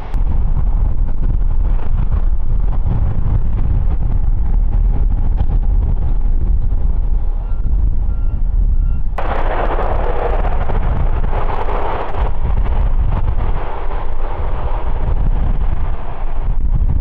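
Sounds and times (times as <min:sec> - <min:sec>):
wind buffeting microphone: 0:00.0 - 0:17.0
jet engines roaring: 0:09.2 - 0:17.0.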